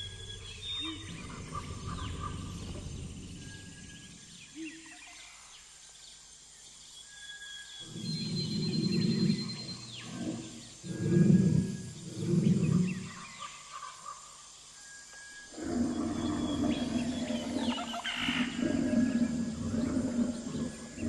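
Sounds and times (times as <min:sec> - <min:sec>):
deep animal calls: 0:00.0 - 0:04.0, 0:07.8 - 0:13.8, 0:15.5 - 0:21.0
birds calling: 0:00.0 - 0:05.4, 0:07.8 - 0:14.3, 0:15.4 - 0:21.0.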